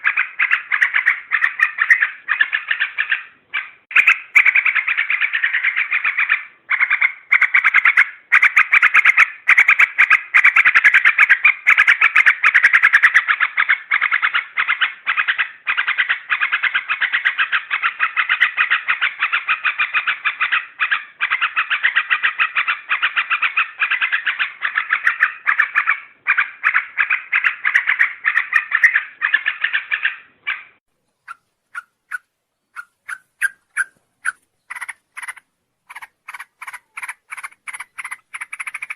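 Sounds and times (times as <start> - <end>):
chattering bird calls: 0.0 - 38.9.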